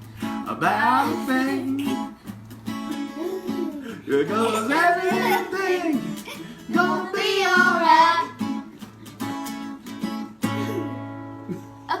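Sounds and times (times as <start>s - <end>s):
strummed acoustic guitar: 0.0s - 12.0s
person singing: 0.5s - 2.1s, 2.9s - 8.4s.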